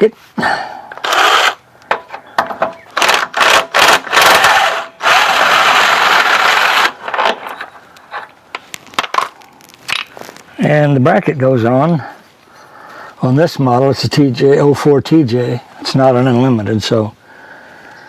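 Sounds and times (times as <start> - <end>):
power tool running: 1.0 - 1.6, 3.0 - 7.4.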